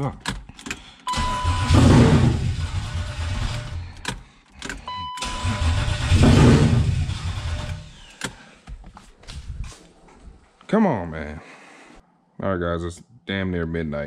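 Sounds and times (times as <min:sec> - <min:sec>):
car engine cranking on starter: 0:00.6 - 0:08.4
short beep: 0:01.1 - 0:01.8, 0:04.9 - 0:05.6
engine firing roughly: 0:01.1 - 0:03.9, 0:05.2 - 0:08.1
starter clicks: 0:07.8 - 0:09.0.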